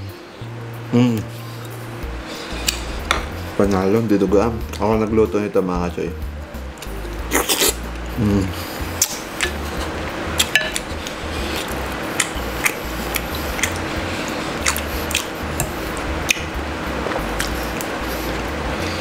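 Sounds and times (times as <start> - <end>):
man chewing: 1.0 - 3.5, 6.8 - 19.0
wet mouth clicks and smacks: 11.6 - 13.8, 14.6 - 16.5.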